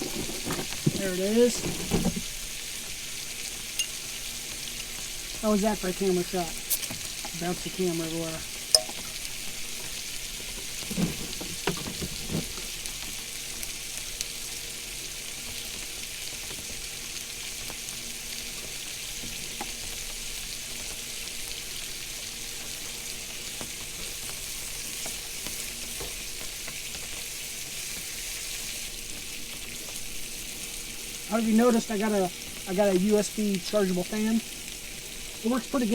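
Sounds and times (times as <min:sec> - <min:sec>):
food sizzling in a frying pan: 0:00.0 - 0:35.9.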